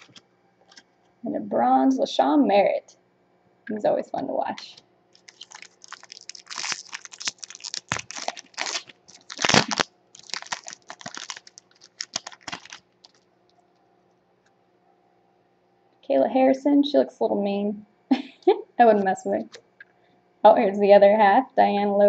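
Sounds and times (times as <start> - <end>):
wrapper tearing and crinkling: 5.2 - 13.3.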